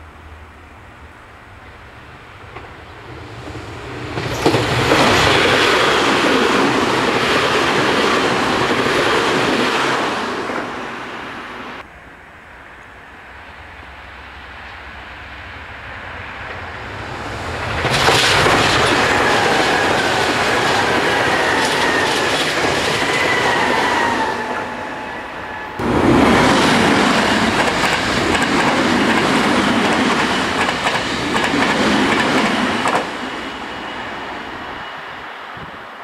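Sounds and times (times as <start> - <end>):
high train whine: 0.0 - 36.0
train wheels clattering over rail joints: 26.4 - 33.2.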